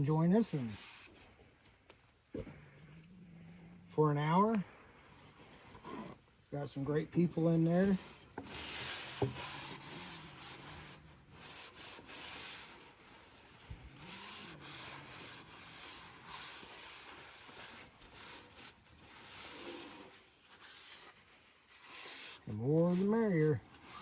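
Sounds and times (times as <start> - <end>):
paper towel wiping steel: 6.8 - 24.0.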